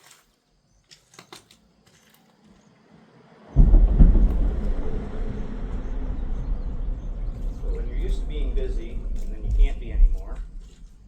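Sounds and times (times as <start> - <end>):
loud low rumble: 3.1 - 11.0.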